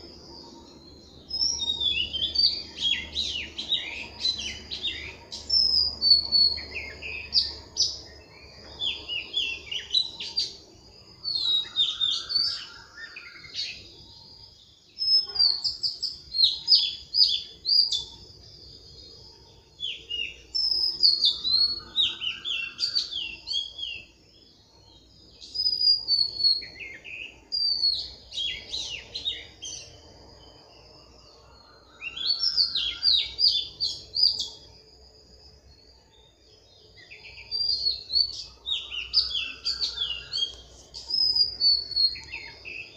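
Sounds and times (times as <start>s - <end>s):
birds twittering: 0.0s - 42.9s
lower rising bird call: 11.2s - 14.4s, 19.8s - 24.1s, 31.2s - 34.7s, 37.1s - 42.9s.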